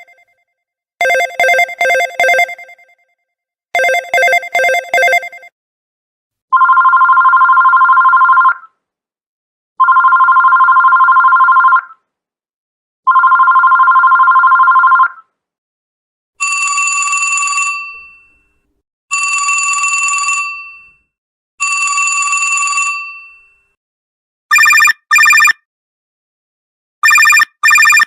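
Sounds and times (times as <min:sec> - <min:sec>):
bell-like telephone ring: 0:00.0 - 0:00.3, 0:03.8 - 0:05.5, 0:16.4 - 0:23.8, 0:24.5 - 0:25.5, 0:27.0 - 0:28.0
electronic telephone ring: 0:00.0 - 0:00.3, 0:01.0 - 0:03.0, 0:03.8 - 0:05.5, 0:06.6 - 0:08.5, 0:09.8 - 0:11.8, 0:13.1 - 0:15.1, 0:16.4 - 0:18.5, 0:19.1 - 0:21.0, 0:21.6 - 0:23.6, 0:24.5 - 0:25.6, 0:27.0 - 0:28.0.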